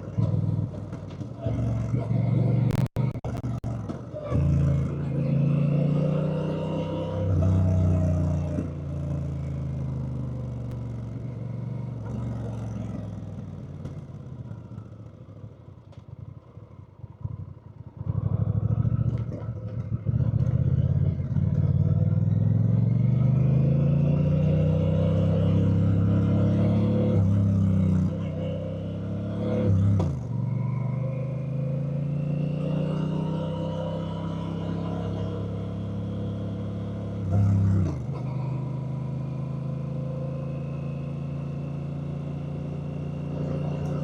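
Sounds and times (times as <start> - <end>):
motorcycle engine: 0.0 - 44.0.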